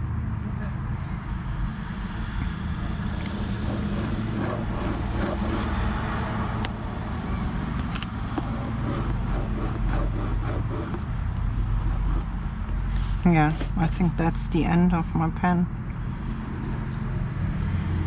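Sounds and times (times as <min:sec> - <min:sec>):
pen scratching on paper: 0:03.5 - 0:05.9, 0:08.4 - 0:11.1, 0:11.8 - 0:13.8.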